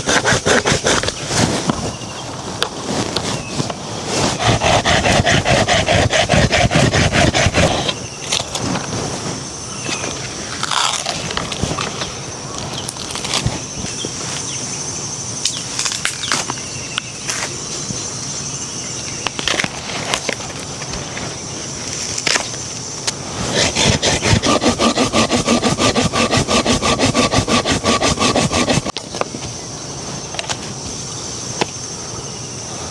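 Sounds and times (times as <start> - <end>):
fast even strokes: 0.0 - 1.6, 4.1 - 8.1, 23.4 - 28.9.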